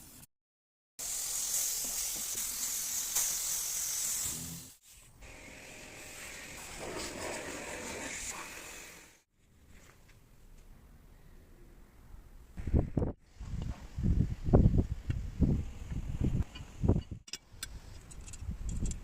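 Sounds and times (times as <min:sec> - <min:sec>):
compressed air spraying hiss: 0:01.0 - 0:09.2.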